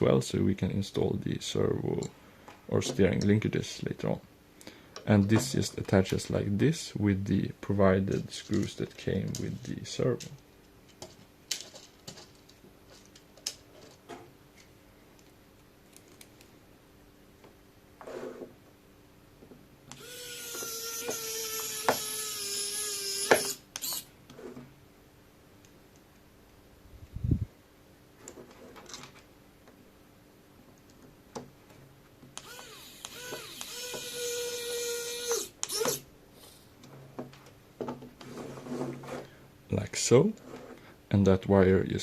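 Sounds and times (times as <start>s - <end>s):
electric screwdriver motor whine: 19.9s - 24.1s, 32.4s - 36.0s
small plastic clicks: 32.3s - 34.2s
short scraping rub: 38.2s - 39.4s.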